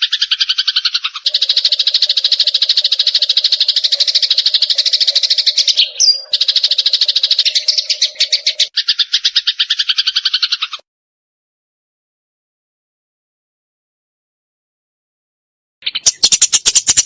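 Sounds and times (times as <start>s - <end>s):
sparrow chattering: 0.0s - 10.8s, 15.8s - 17.0s.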